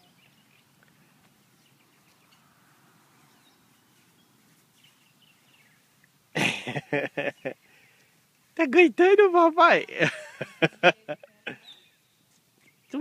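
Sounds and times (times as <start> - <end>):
faint bird chirps: 11.4 - 13.0.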